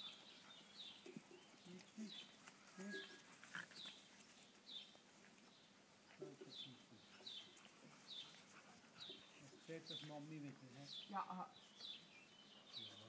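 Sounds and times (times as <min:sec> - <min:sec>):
puppies grunting: 0:00.0 - 0:10.1.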